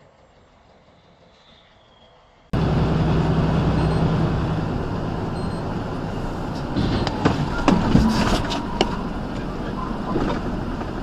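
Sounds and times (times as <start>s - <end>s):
vehicle road and engine noise: 2.2s - 11.0s.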